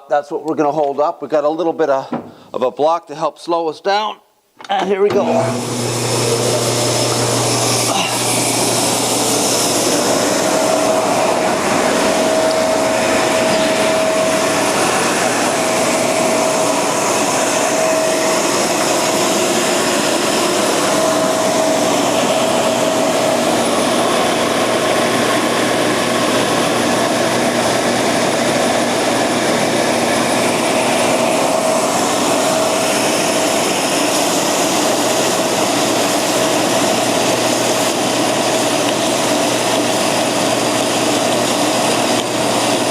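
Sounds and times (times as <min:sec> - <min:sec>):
belt sander sanding wood: 0:05.1 - 0:42.9
faint whine: 0:10.4 - 0:18.8.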